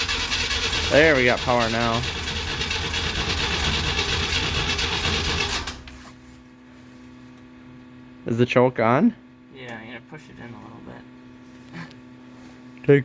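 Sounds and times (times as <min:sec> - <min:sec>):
starter motor cranking engine: 0:00.0 - 0:06.0.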